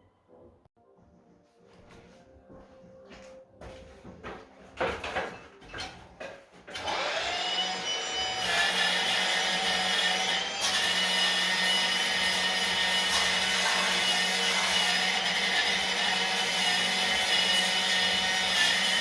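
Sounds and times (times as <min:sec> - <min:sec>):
wire brush tool scrubbing stone: 0:08.4 - 0:19.0.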